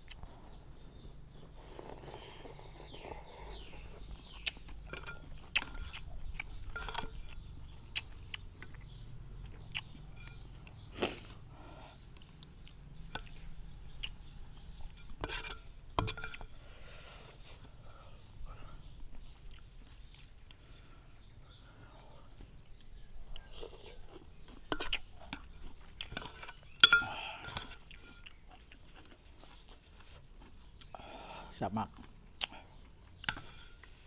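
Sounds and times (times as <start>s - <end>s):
chewing and slurping: 0.0s - 17.8s, 22.2s - 31.0s.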